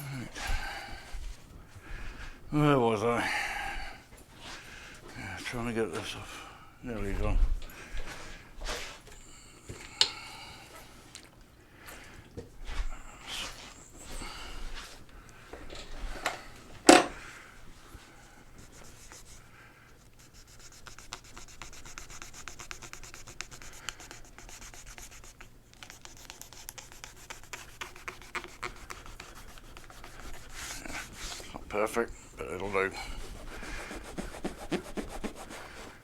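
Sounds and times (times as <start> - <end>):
scratchy scrubbing strokes: 18.6 - 36.0.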